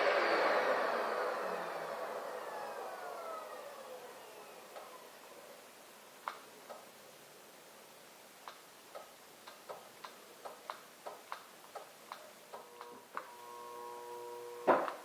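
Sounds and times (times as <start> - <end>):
faint sharp clicks: 6.2 - 6.8, 8.4 - 13.3.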